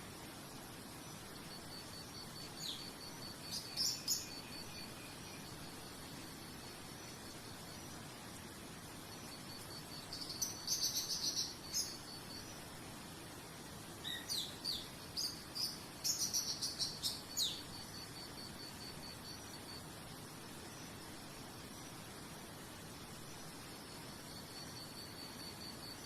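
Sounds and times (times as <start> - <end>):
insect chirping: 0.0 - 26.0
soft background hiss: 0.0 - 26.0
bird chirps and trills: 1.1 - 8.1, 9.1 - 12.6, 14.0 - 19.6.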